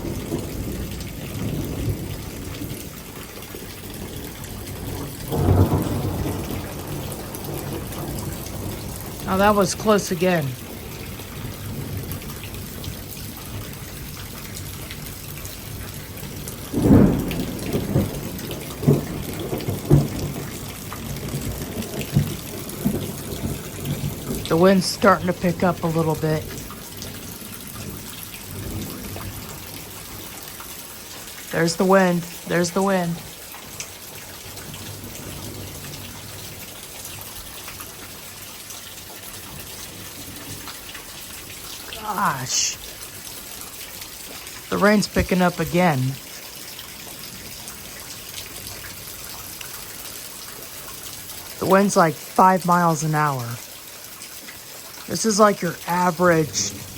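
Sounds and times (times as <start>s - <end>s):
thunder clap and rumbling: 0.0s - 30.6s, 33.2s - 36.8s, 56.4s - 56.9s
heavy rain: 0.0s - 56.9s.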